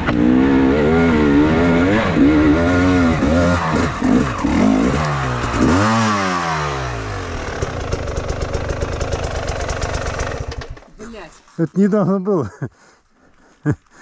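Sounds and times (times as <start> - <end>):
motorcycle engine revving: 0.0 - 10.9
motorcycle engine idling: 6.9 - 11.0.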